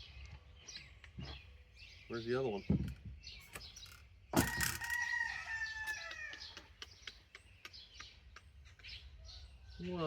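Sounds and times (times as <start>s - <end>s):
small birds chirping: 0.0s - 10.0s
rooster crowing: 4.4s - 6.4s.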